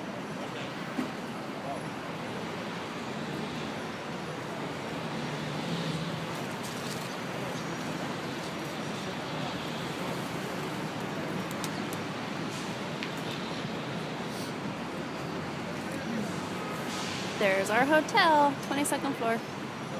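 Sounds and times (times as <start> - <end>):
city traffic noise: 0.0 - 19.9
faint clicks: 11.4 - 12.0.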